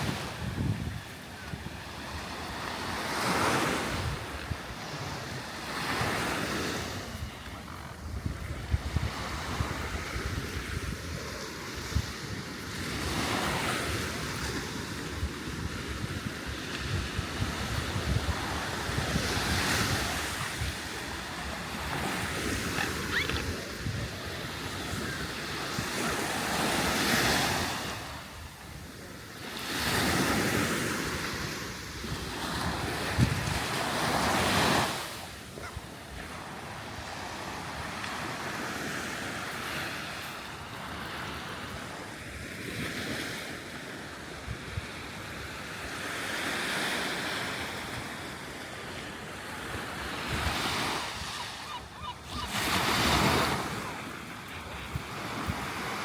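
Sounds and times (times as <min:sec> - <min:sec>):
wind buffeting the microphone: 0:00.0 - 0:29.0, 0:29.8 - 0:35.0, 0:52.2 - 0:56.0
sea waves breaking on a beach: 0:00.0 - 0:56.0.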